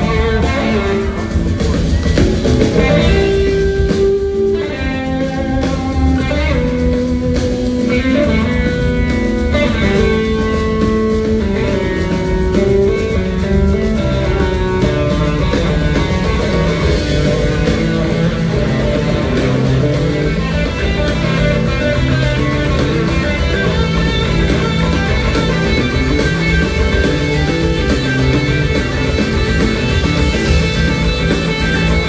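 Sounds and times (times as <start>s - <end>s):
bass guitar: 0.0s - 32.0s
drums: 0.0s - 32.0s
electric guitar lead: 0.0s - 32.0s.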